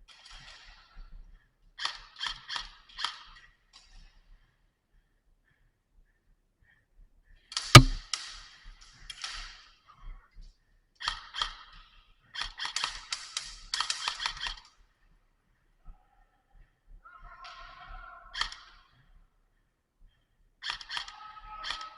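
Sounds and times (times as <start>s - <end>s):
airsoft gunfire: 7.8s - 8.0s.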